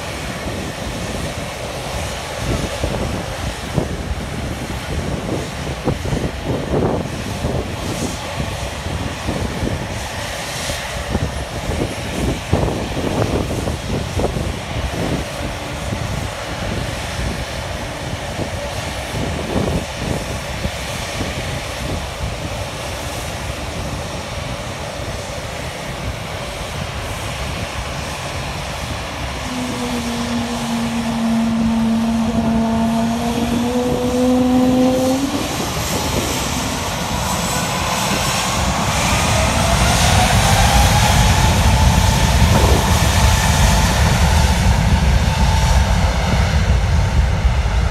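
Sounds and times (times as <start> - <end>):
jet engines spooling up: 0.0 - 47.9.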